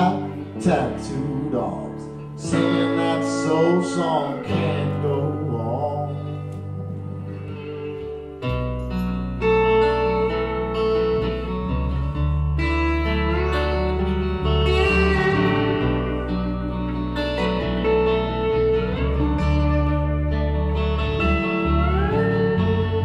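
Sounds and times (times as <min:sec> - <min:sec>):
guitar notes sliding upward: 0:00.0 - 0:23.0
rock band playing: 0:06.5 - 0:23.0.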